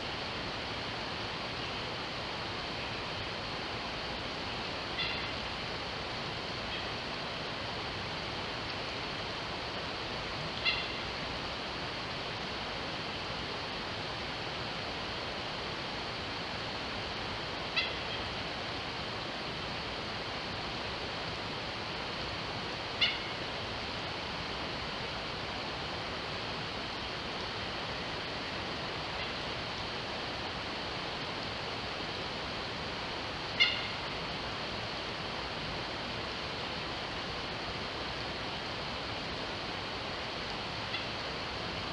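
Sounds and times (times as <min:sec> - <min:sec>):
mountain stream rushing: 0:00.0 - 0:41.9
sharp bird calls: 0:05.0 - 0:05.4, 0:10.6 - 0:11.1, 0:17.7 - 0:18.3, 0:23.0 - 0:23.4, 0:33.6 - 0:34.0.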